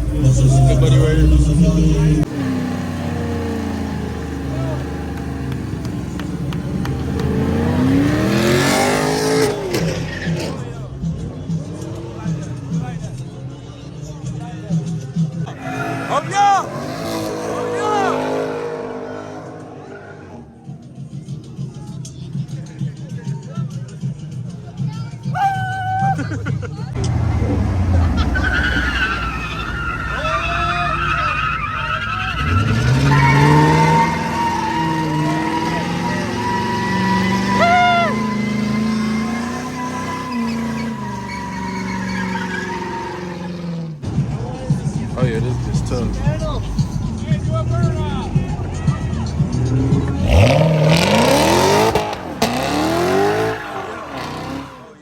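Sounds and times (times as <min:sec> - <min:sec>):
car engine revving: 0:00.0 - 0:21.6, 0:26.9 - 0:55.0
tyres squealing: 0:03.1 - 0:11.0, 0:27.0 - 0:44.0, 0:45.5 - 0:55.0.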